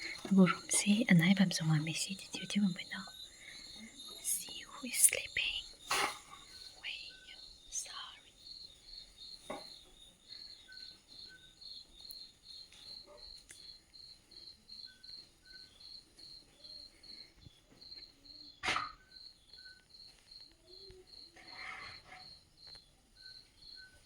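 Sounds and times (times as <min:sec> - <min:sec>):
insect chirping: 0:00.0 - 0:24.0.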